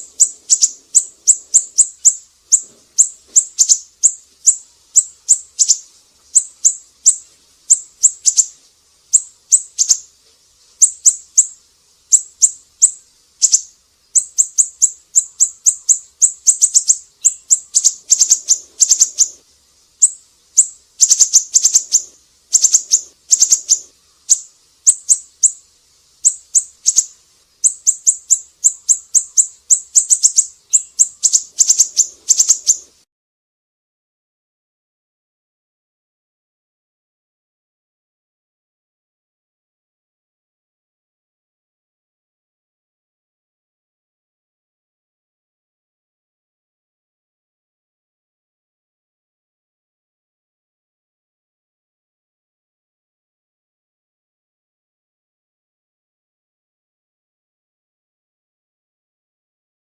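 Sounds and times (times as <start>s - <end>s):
bird chirping rapidly: 0.0s - 10.1s, 10.8s - 19.4s, 20.0s - 32.9s.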